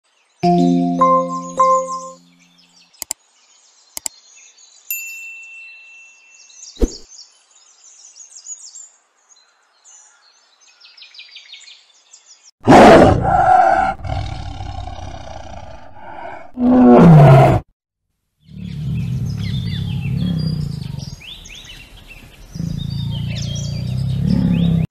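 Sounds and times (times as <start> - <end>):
short chime: 0.4 - 2.4
lion roaring: 12.6 - 17.6, 18.5 - 21.2, 22.5 - 24.9
faint birds chirping: 18.4 - 24.9.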